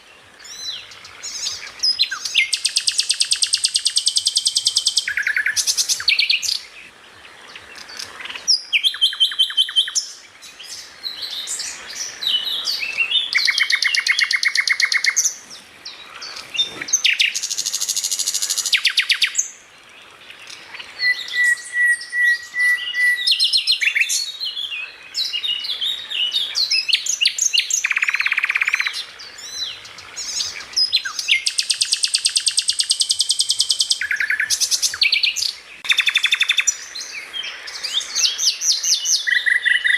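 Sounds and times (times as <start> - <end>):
songbird trilling and chirping: 0.4 - 19.6, 20.2 - 39.9.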